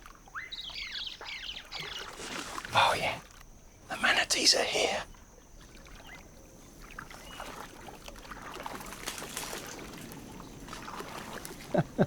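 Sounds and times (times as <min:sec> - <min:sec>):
water sloshing and splashing: 0:01.8 - 0:03.4, 0:05.6 - 0:12.0.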